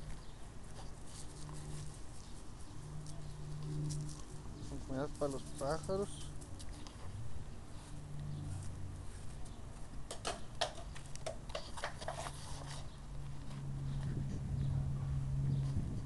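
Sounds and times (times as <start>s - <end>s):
small birds chirping: 0.0s - 7.2s
steady low hum: 0.0s - 16.0s.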